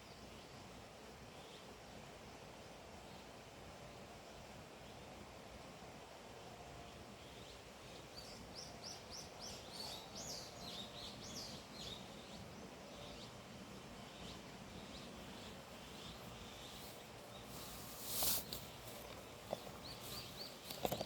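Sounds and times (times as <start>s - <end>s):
steady outdoor hiss: 0.0s - 21.0s
songbird chirping: 6.9s - 21.0s.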